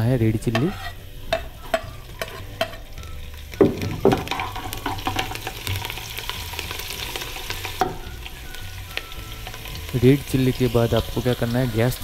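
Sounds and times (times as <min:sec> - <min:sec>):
chillies sizzling in hot oil: 0:00.0 - 0:12.0
steel spoon clanking on pot: 0:00.5 - 0:02.9, 0:04.0 - 0:05.6.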